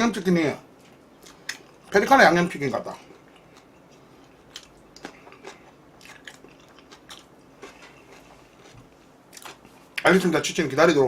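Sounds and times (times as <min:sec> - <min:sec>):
chewing crunchy fried chicken: 0:00.8 - 0:02.0, 0:02.8 - 0:10.1.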